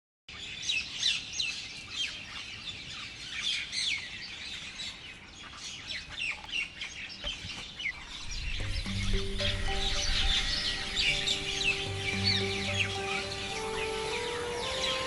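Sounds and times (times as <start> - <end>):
small birds chirping: 0.3 - 15.0.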